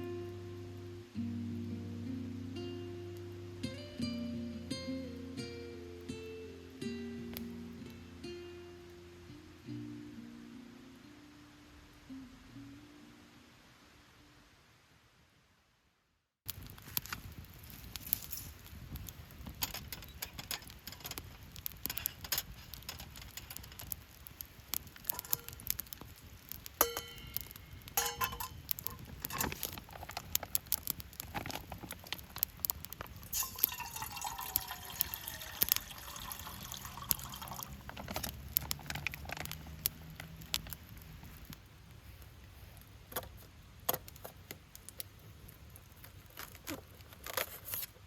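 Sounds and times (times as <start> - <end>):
cooking gear clicks and clinks: 19.4 - 24.0, 25.0 - 25.7, 26.8 - 40.7
ringing clink: 26.8 - 28.6
liquid pouring into pot: 33.2 - 39.2.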